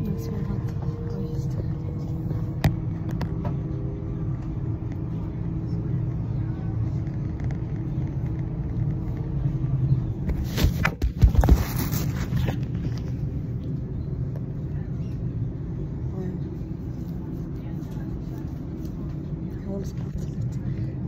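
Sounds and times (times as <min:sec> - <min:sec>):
faint hum: 0:00.0 - 0:21.0
train rumble: 0:00.0 - 0:21.0.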